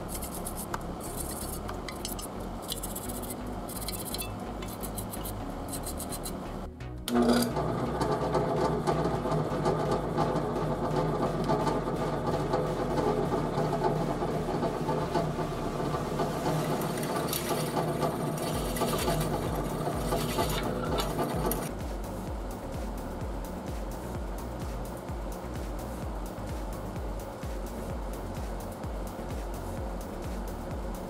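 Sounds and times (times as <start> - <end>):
small motor chattering: 0.0 - 6.4, 16.5 - 21.7.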